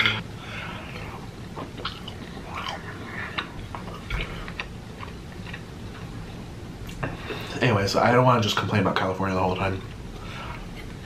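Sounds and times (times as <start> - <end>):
chewing food: 1.5 - 7.0.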